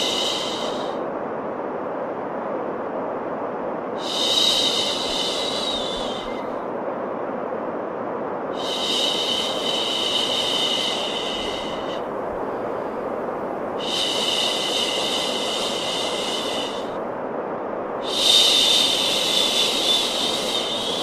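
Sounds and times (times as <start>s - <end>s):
sharp shushing hiss: 0.0s - 1.0s, 4.0s - 6.6s, 8.6s - 12.1s, 13.8s - 17.0s, 18.0s - 21.0s
white noise hiss: 0.0s - 21.0s.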